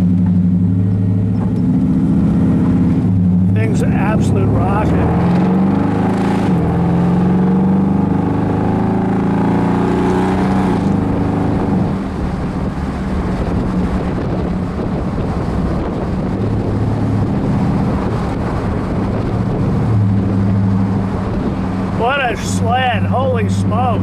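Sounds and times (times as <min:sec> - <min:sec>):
car engine running: 0:00.0 - 0:24.0
wind and road noise: 0:00.0 - 0:24.0.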